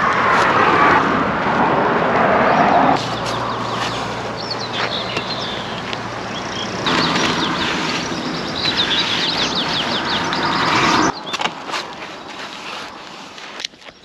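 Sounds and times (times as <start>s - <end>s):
small birds chirping: 2.2s - 14.0s
steady rushing hiss: 2.9s - 11.1s.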